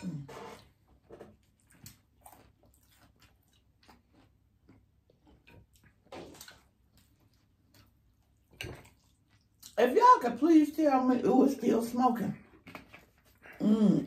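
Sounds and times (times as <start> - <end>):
people chewing: 0.0 - 9.8.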